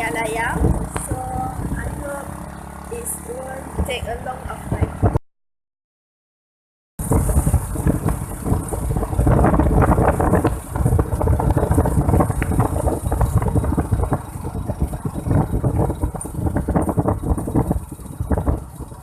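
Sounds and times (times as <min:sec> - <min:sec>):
vehicle engine and road rumble: 0:00.0 - 0:05.2, 0:07.0 - 0:19.0
wind buffeting microphone: 0:00.0 - 0:05.2, 0:07.0 - 0:19.0.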